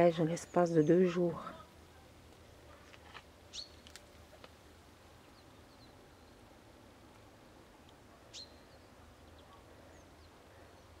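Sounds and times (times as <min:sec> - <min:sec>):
faint clicks: 0:02.3 - 0:04.6
small birds chirping: 0:03.5 - 0:04.4, 0:05.0 - 0:06.6, 0:07.8 - 0:11.0.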